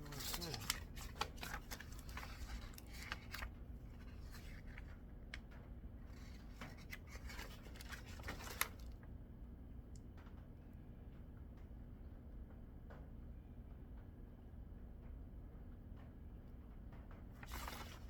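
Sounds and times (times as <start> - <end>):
low steady hum: 0.0 - 12.6.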